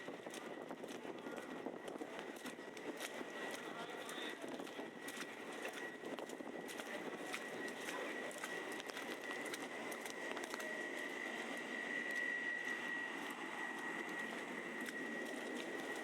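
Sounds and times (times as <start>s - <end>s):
traffic and people hum: 0.0s - 16.0s.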